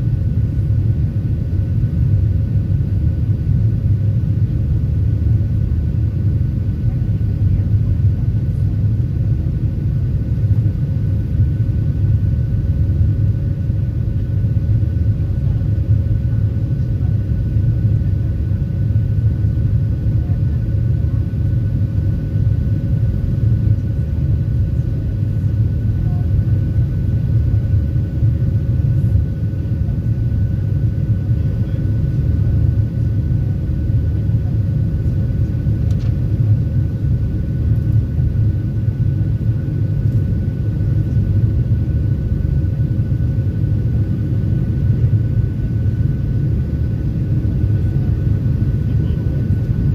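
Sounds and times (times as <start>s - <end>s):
jet engine cabin rumble: 0.0s - 49.9s.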